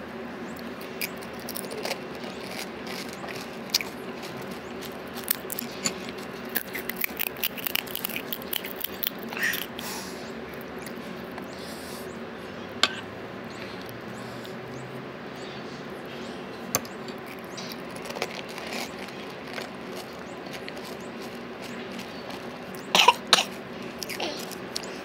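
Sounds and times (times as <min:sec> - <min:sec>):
steady low hum: 0:00.0 - 0:25.0
crunching and wet chewing: 0:00.5 - 0:11.8, 0:12.7 - 0:25.0
crisp shell cracking: 0:00.6 - 0:09.8, 0:16.8 - 0:22.8.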